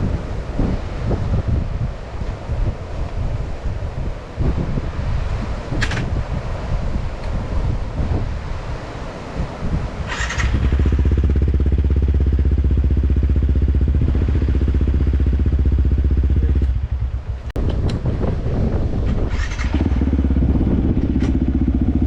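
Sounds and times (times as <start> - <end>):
motorcycle engine running: 10.1 - 22.0.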